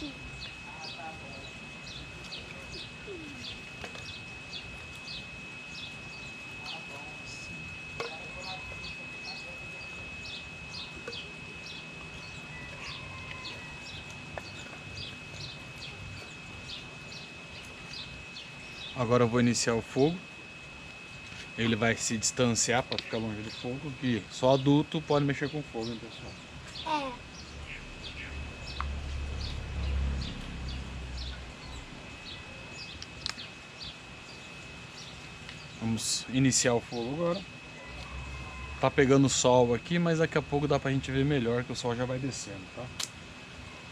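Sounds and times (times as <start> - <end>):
thin high tone: 0.0 - 33.0
birds chirping: 0.0 - 42.8
steady high-pitched whine: 0.0 - 43.9
sharp click: 43.0 - 43.2.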